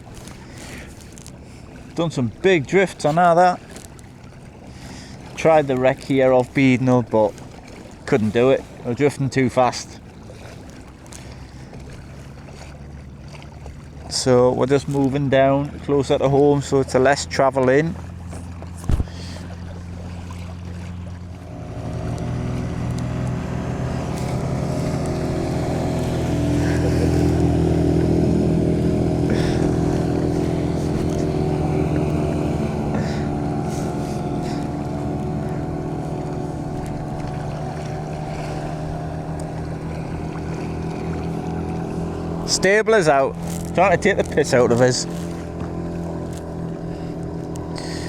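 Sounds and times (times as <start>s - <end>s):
outboard motor running: 0.0s - 48.0s.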